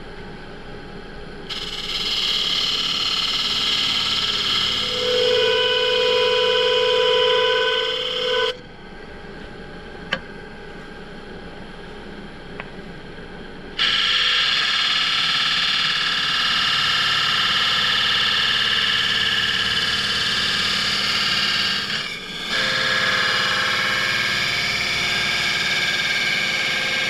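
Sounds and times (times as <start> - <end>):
lathe humming: 1.5 - 8.6, 13.8 - 27.0
pitched ringing: 1.5 - 8.6.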